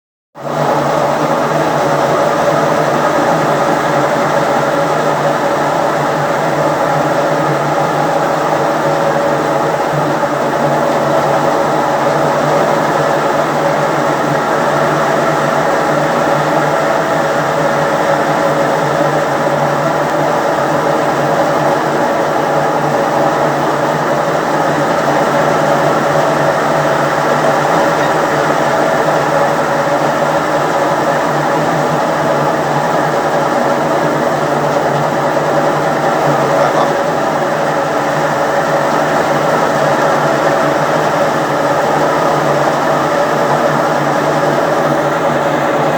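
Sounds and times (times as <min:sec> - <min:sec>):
washing machine mechanical drone: 0:00.4 - 0:45.9.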